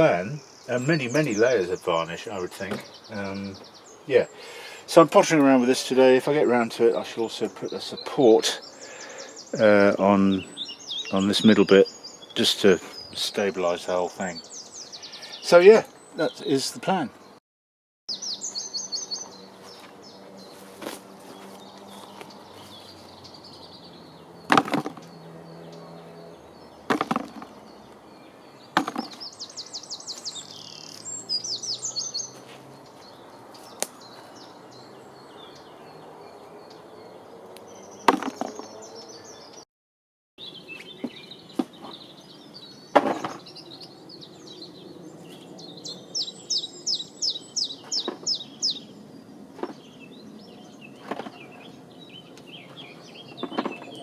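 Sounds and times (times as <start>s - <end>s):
birdsong with high trills: 0.0s - 17.4s, 18.1s - 39.7s, 40.4s - 54.0s
wood knocks: 24.5s - 25.1s, 26.9s - 27.5s, 28.8s - 29.2s, 38.1s - 38.7s, 42.9s - 43.4s.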